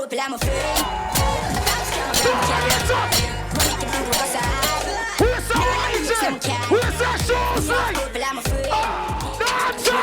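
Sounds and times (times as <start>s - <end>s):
loud dance music with heavy bass: 0.4s - 10.0s.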